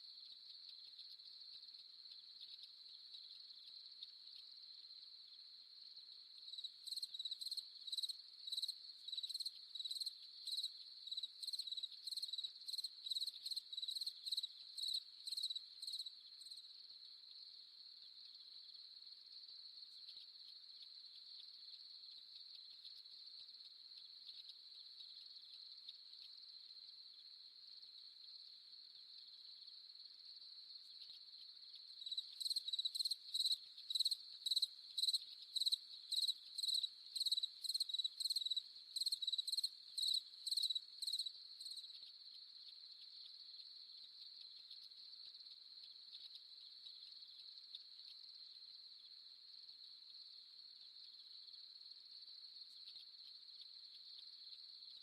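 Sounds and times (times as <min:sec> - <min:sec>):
cricket chirping in regular pulse: 0:00.0 - 0:55.0
crickets trilling: 0:30.8 - 0:48.4.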